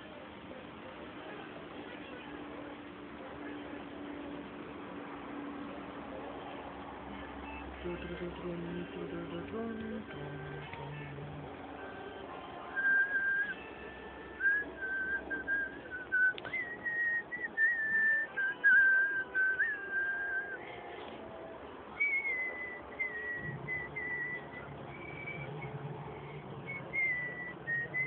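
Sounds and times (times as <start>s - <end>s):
person whistling a slow tune: 12.6s - 20.8s, 21.9s - 28.0s.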